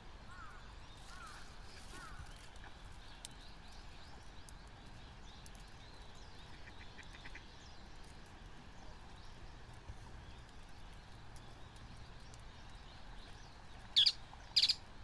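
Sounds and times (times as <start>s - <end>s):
bird chirps: 13.4s - 14.8s.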